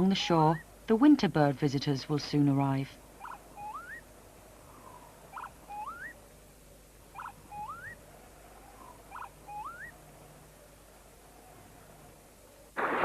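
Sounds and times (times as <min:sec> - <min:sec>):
bird calling: 0:03.0 - 0:06.4, 0:07.1 - 0:10.6.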